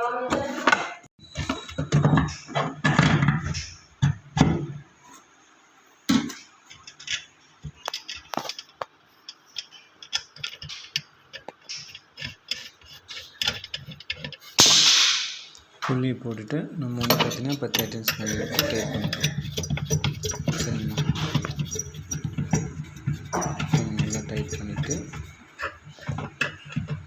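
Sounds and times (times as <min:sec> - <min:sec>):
metallic tool clicks and scrapes: 0:17.0 - 0:25.8.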